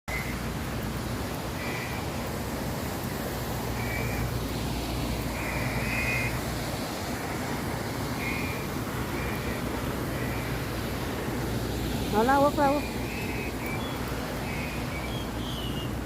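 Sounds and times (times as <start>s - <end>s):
surf rushing: 0.1s - 16.0s
wind: 0.1s - 16.0s
bird short high calls: 12.6s - 16.0s.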